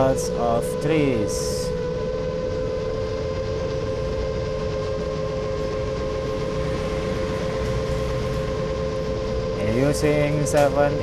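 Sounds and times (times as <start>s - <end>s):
quadcopter motors whining: 0.0s - 11.0s.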